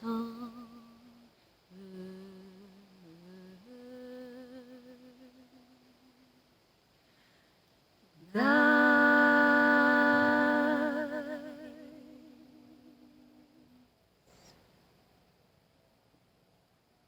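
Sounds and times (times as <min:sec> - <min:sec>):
person singing long note: 0:08.2 - 0:13.8.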